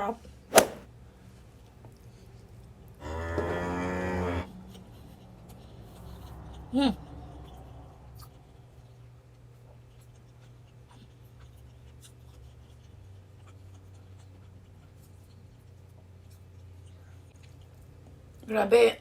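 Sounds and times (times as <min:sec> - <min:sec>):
chewing and handling food: 0:04.7 - 0:18.5.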